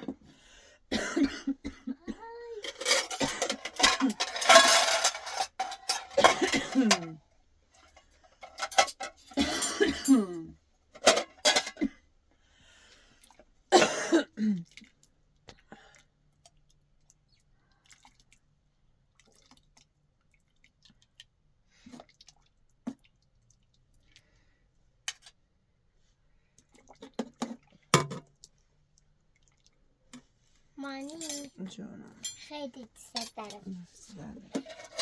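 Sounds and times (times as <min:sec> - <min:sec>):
woman coughing: 0:00.9 - 0:04.2, 0:06.2 - 0:07.2, 0:09.4 - 0:10.5, 0:13.7 - 0:14.6
dishes and utensils clinking: 0:02.6 - 0:07.1, 0:08.4 - 0:10.2, 0:11.0 - 0:11.9, 0:31.1 - 0:31.6, 0:32.2 - 0:33.7, 0:34.5 - 0:35.0.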